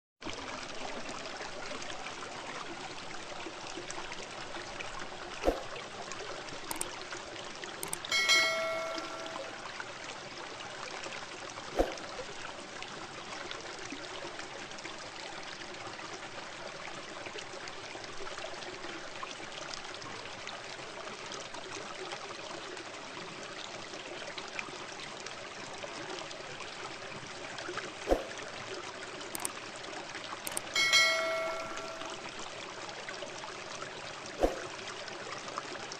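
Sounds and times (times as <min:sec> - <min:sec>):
sharp clicks: 0:06.7 - 0:06.9, 0:07.8 - 0:08.1, 0:30.5 - 0:32.2
bell-like chime: 0:07.8 - 0:09.7, 0:30.8 - 0:32.2.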